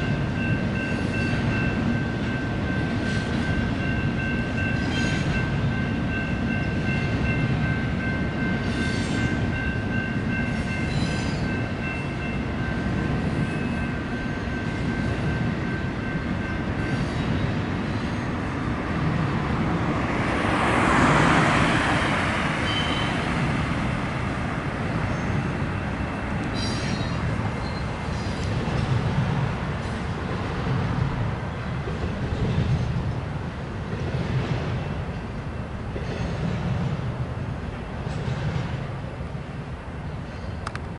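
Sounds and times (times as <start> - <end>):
freight train cars rumbling: 0.0 - 40.9
high wheel squeals: 21.7 - 23.3, 25.1 - 28.9.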